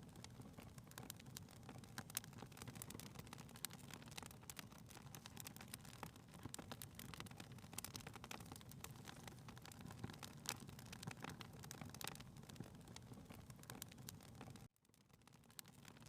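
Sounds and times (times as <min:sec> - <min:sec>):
faint wood fire crackling: 0:00.0 - 0:16.0.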